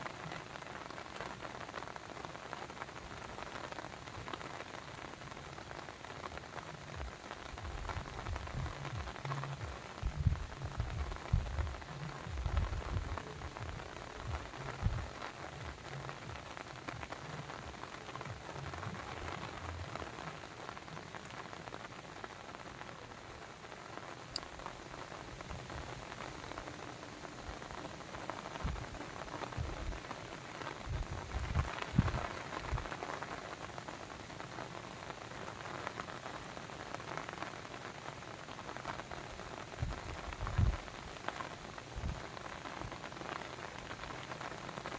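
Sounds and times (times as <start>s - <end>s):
low rumbles: 7.6s - 17.3s.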